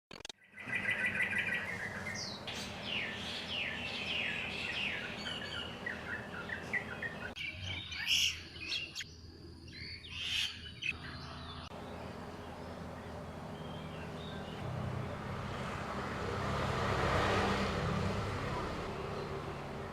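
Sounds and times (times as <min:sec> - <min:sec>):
birds singing: 0:00.4 - 0:15.6.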